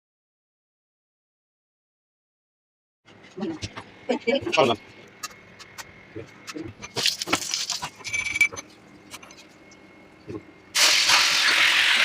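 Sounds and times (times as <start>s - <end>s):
kitchen utensils clinking: 6.8s - 9.5s
tap water running: 10.8s - 12.0s.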